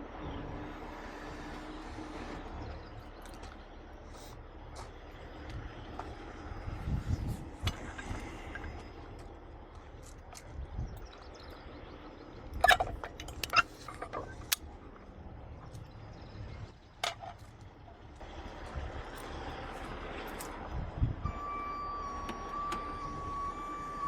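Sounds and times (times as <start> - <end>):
low engine rumble: 0.0 - 24.0
metal chain clanking: 12.5 - 14.6.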